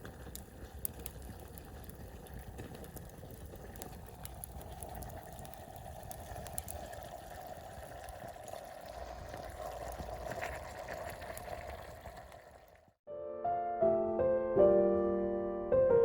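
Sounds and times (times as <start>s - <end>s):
sauce bubbling in a pan: 0.0s - 13.0s
soft piano music: 13.1s - 16.0s.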